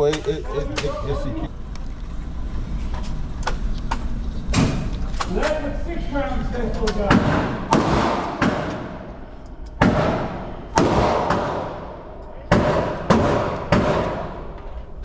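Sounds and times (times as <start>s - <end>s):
echoing gunshots: 7.0s - 14.6s.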